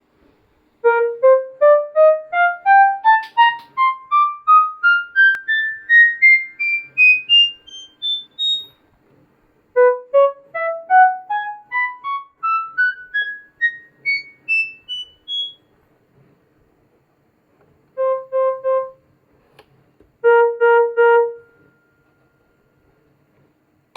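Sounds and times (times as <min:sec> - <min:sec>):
keyboard playing rising scale: 0:00.8 - 0:08.8, 0:09.8 - 0:15.6, 0:18.0 - 0:19.0, 0:20.2 - 0:22.0.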